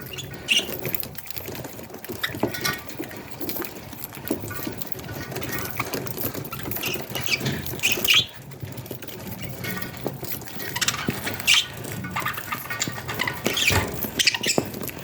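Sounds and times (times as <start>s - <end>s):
small ticks and scratching: 0.0s - 15.0s
budgerigars chirping: 0.1s - 0.8s, 6.7s - 8.4s, 10.7s - 14.8s.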